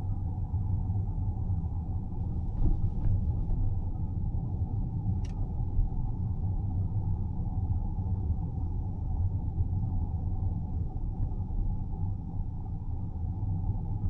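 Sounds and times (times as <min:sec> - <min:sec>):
car driving on road: 0:02.2 - 0:05.9.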